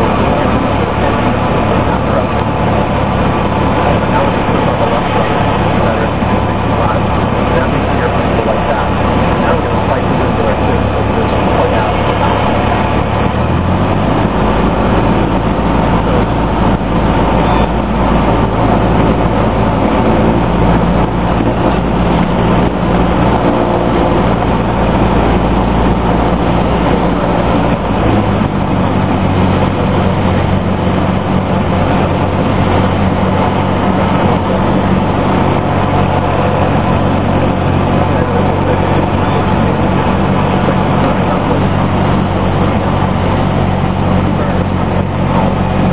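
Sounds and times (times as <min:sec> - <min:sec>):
propeller plane engine droning: 0:00.0 - 0:45.9.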